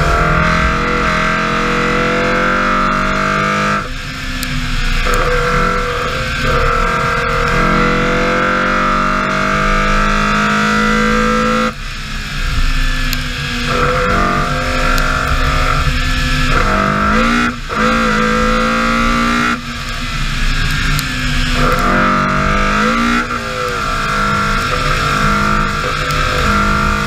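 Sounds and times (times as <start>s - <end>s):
rally car engine revving: 0.0s - 27.0s.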